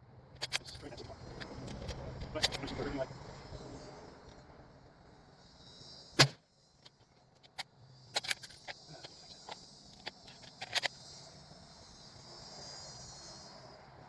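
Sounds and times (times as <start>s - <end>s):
metallic clicks and rattles: 0.4s - 2.8s, 6.2s - 11.0s
high insect drone: 7.8s - 14.0s.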